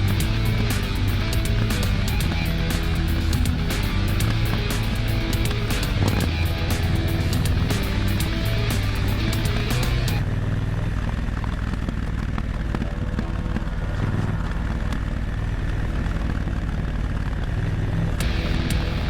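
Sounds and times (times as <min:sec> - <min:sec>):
background music with a beat: 0:00.0 - 0:10.2, 0:18.2 - 0:19.0
motorcycle engine cruising: 0:00.0 - 0:19.0.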